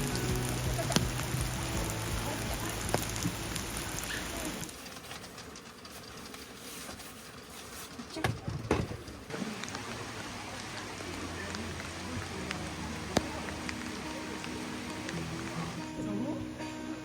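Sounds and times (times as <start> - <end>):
steady rain falling: 0.0 - 5.4, 9.2 - 16.4.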